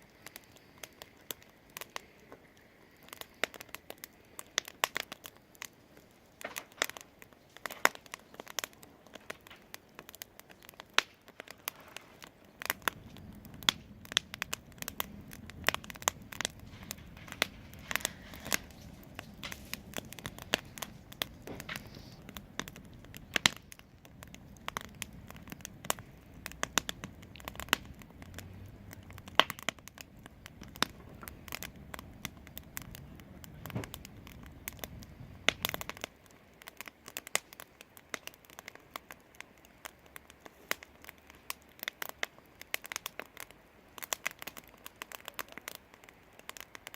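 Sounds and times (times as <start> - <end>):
wood fire crackling: 0.0 - 46.9
low steady rumble: 12.6 - 36.1.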